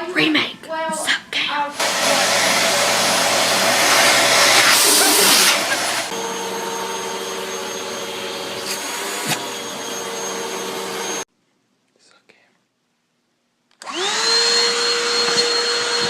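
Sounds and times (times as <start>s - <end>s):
vacuum cleaner running: 1.8s - 11.2s, 13.8s - 16.0s.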